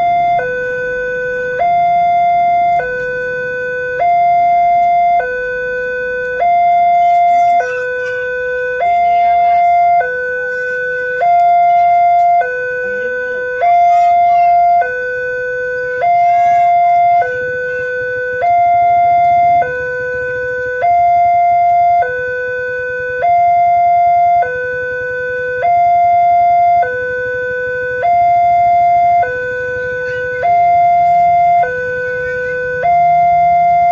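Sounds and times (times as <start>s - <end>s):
two-tone level crossing alarm: 0.0s - 33.9s.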